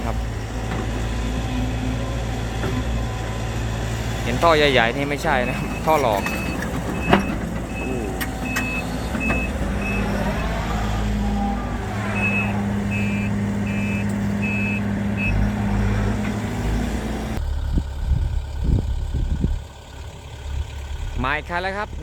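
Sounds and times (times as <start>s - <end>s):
diesel engine hum: 0.0s - 22.0s
backup alarm beeping: 5.2s - 10.6s, 12.2s - 15.5s.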